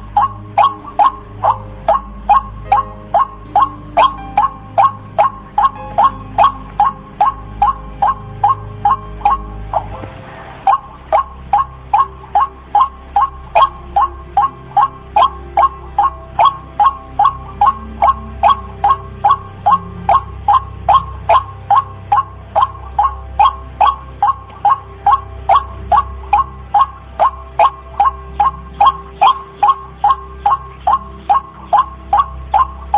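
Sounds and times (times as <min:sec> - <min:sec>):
waterhen calling: 0:00.0 - 0:10.0, 0:10.6 - 0:32.9.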